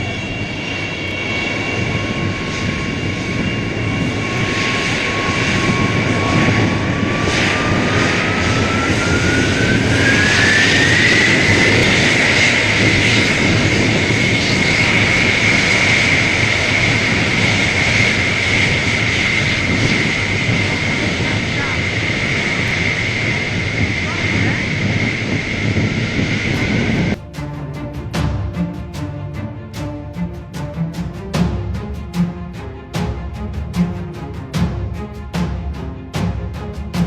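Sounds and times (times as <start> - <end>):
turbine whine: 0.0 - 28.1
jet engines running: 0.0 - 37.0.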